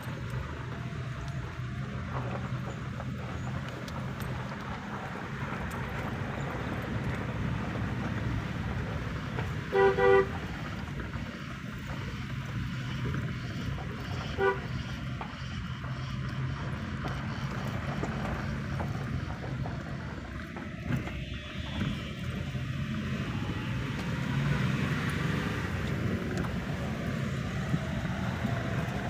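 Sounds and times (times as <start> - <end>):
engine and road rumble: 0.0 - 29.0
vehicle horn toots: 9.6 - 10.5, 14.2 - 14.9.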